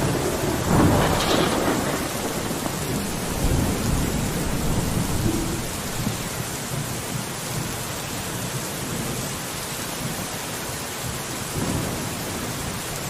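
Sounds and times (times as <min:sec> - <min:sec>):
rain on a window: 0:00.0 - 0:13.0
low rumble: 0:01.0 - 0:06.4.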